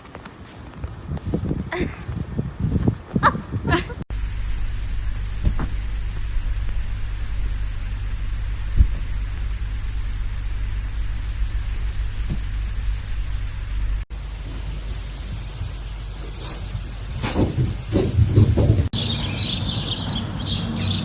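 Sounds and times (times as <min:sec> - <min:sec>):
faint hiss: 0:04.1 - 0:18.9
low rumble: 0:04.1 - 0:18.9
soft thumps: 0:04.1 - 0:18.9.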